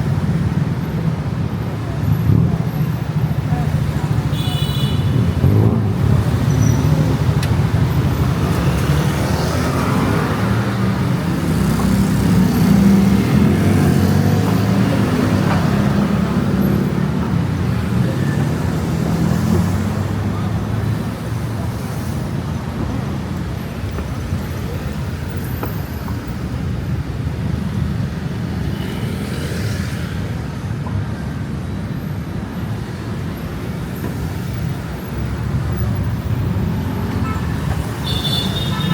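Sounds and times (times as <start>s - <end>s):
vehicles swishing past: 5.0s - 38.9s.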